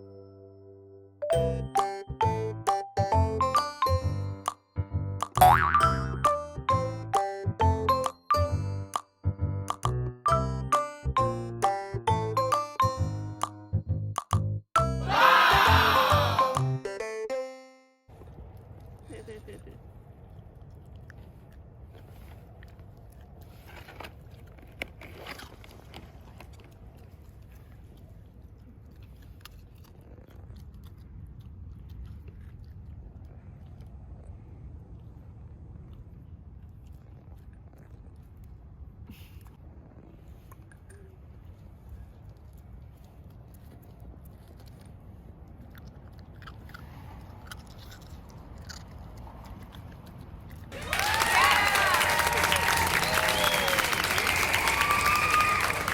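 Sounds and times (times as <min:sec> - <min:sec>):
pet chewing and gnawing: 0:19.8 - 0:50.8.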